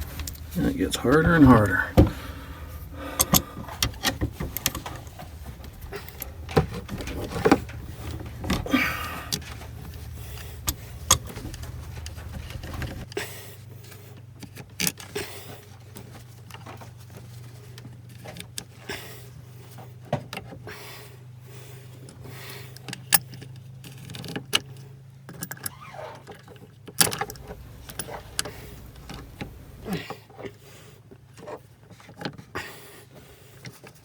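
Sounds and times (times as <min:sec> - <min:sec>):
metallic clicks and rattles: 0:00.0 - 0:13.2, 0:26.3 - 0:30.0
low steady hum: 0:00.0 - 0:19.9, 0:27.0 - 0:30.1.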